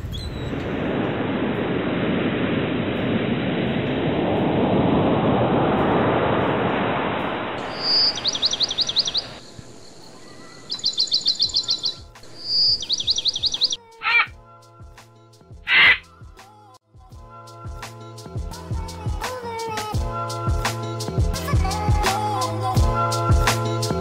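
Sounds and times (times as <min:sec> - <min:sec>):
bird singing whistles and trills: 0:00.0 - 0:00.5, 0:07.6 - 0:14.3
steady rush of noise: 0:00.4 - 0:13.8.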